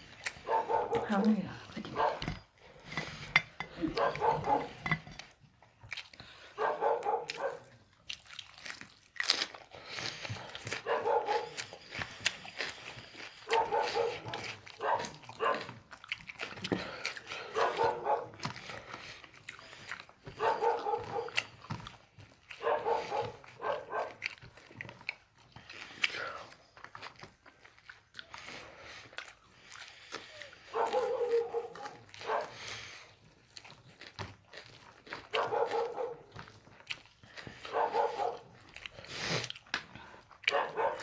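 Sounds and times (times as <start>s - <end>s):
dog barking: 0.4s - 1.3s, 1.9s - 2.4s, 3.8s - 4.9s, 6.6s - 7.8s, 10.7s - 11.6s, 13.4s - 15.8s, 17.5s - 18.4s, 20.3s - 21.4s, 22.6s - 24.3s, 30.7s - 32.6s, 35.2s - 36.4s, 37.6s - 38.6s, 40.5s - 41.0s.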